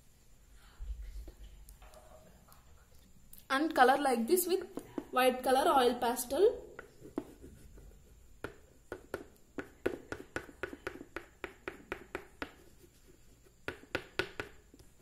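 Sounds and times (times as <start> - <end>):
oil pastel rubbing on paper: 6.9 - 8.6, 11.6 - 13.9.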